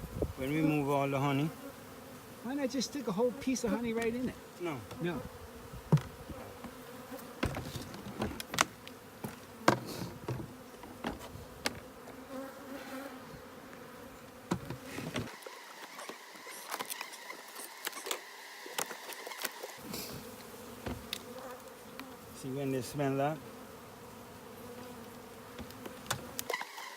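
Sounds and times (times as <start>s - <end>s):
honey bees buzzing: 0.0s - 26.9s
hive handling clicks and knocks: 3.8s - 5.1s, 5.8s - 12.2s, 14.3s - 22.2s, 25.5s - 26.9s.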